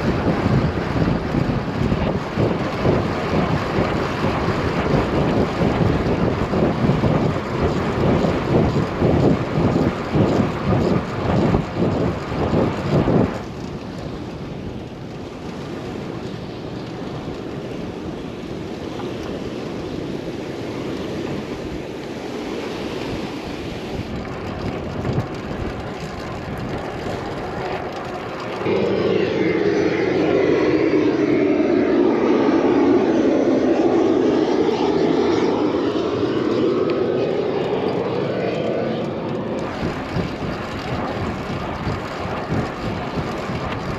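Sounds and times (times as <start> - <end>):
propeller airplane drone: 0.0 - 43.9
wind buffeting microphone: 0.0 - 43.9
loud engine sound: 23.7 - 43.9.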